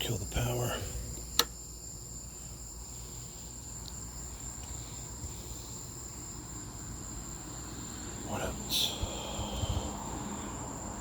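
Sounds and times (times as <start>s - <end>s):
crickets chirring: 0.0s - 11.0s
sharp click: 1.2s - 1.6s.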